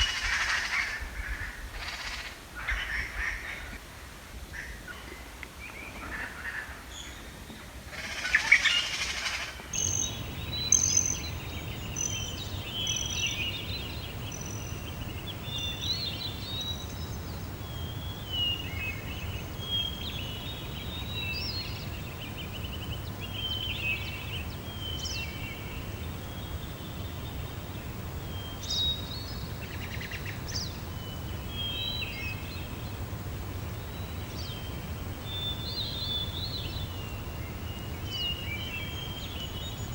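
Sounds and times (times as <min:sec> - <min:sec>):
songbirds chirping and trilling: 0:08.2 - 0:39.9
steady low rumble: 0:09.8 - 0:18.2.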